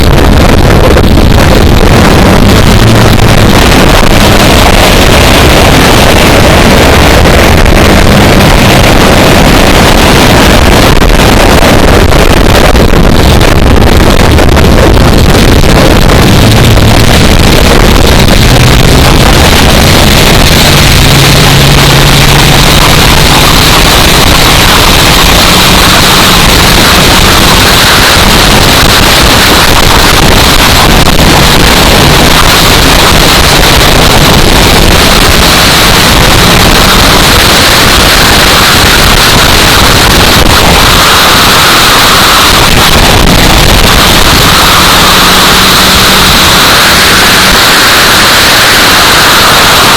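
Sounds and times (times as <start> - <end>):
wind buffeting microphone: 0.0 - 35.4.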